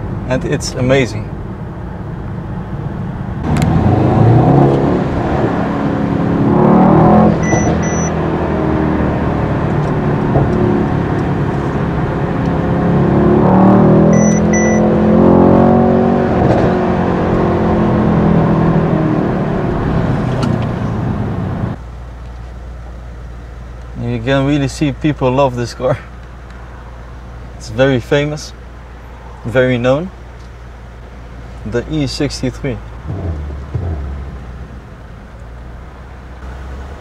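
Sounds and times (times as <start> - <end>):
car engine accelerating: 3.4 - 21.8, 32.4 - 37.0.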